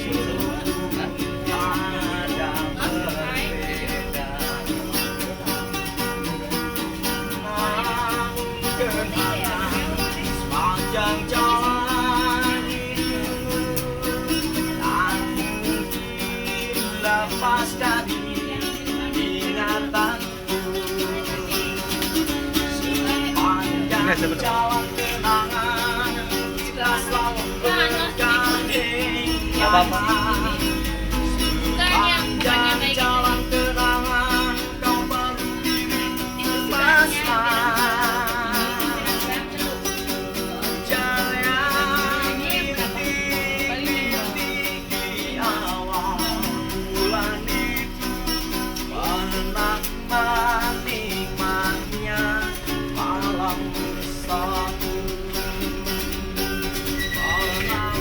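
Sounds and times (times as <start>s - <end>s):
plucked string accompaniment: 0.0s - 58.0s
wavering melody with vibrato: 54.1s - 58.0s.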